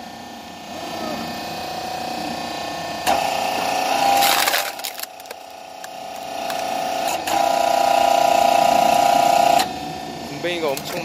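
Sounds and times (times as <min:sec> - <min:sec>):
hydraulic pump whine: 0:00.0 - 0:11.0
wood cracking and splintering: 0:04.0 - 0:06.7.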